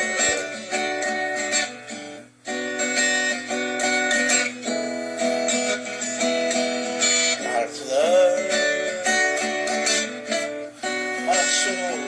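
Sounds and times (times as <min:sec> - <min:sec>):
guitar chords strummed: 0:00.0 - 0:12.0.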